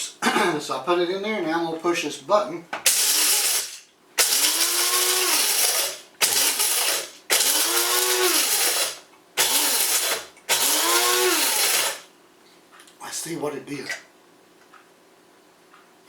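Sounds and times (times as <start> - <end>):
electric coffee grinder: 2.8 - 12.1.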